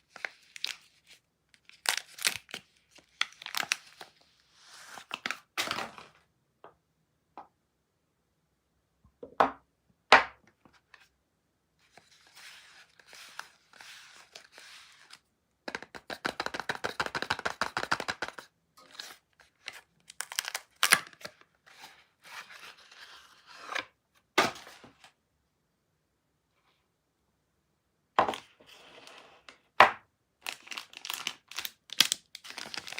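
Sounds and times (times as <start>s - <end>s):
wrapper crinkling and tearing: 0.1s - 4.1s, 20.0s - 21.3s, 30.4s - 32.9s.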